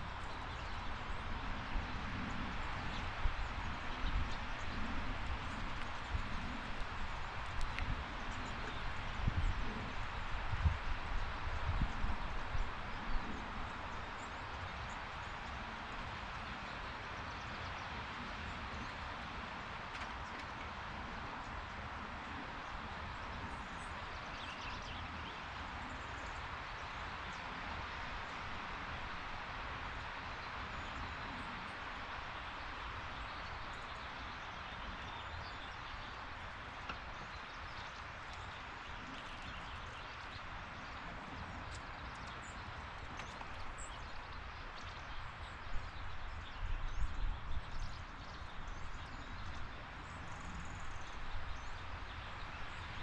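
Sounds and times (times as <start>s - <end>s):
outdoor background hiss: 0.0s - 53.0s
faint ticks: 7.4s - 8.0s.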